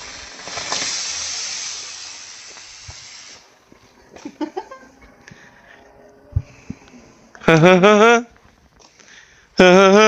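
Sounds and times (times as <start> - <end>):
firework fountain hissing: 0.0 - 3.8.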